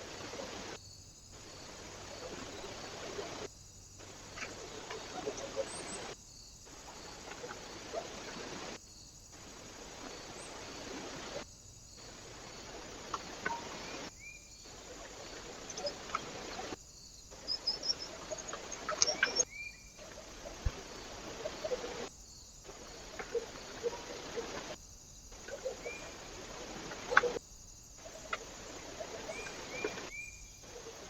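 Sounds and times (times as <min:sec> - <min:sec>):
microphone hiss: 0:00.0 - 0:31.0
small birds chirping: 0:12.0 - 0:22.1, 0:25.4 - 0:27.4, 0:28.0 - 0:31.0.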